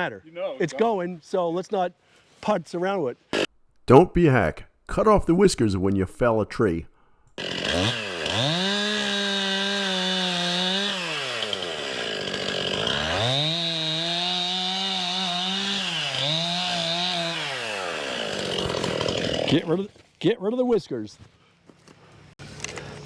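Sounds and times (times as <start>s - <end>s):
chainsaw revving and cutting: 7.4s - 19.8s.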